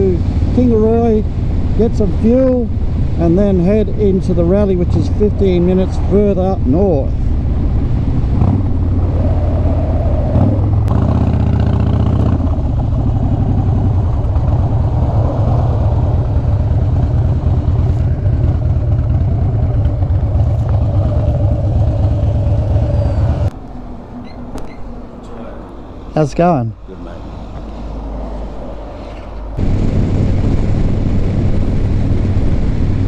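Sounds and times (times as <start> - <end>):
motorcycle engine running: 7.4 - 23.5.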